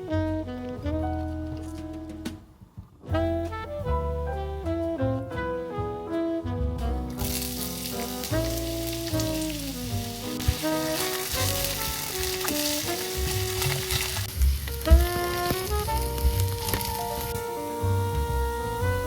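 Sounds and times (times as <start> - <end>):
jazz background music: 0.0 - 19.0
food sizzling in a pan: 7.2 - 17.4.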